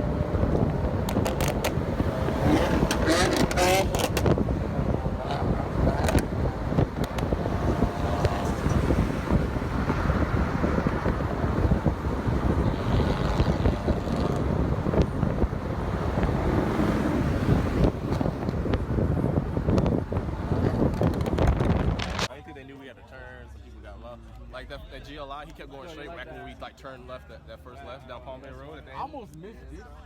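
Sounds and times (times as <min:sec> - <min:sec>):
wind buffeting microphone: 0:00.0 - 0:22.3
car engine and road rumble: 0:00.0 - 0:30.0.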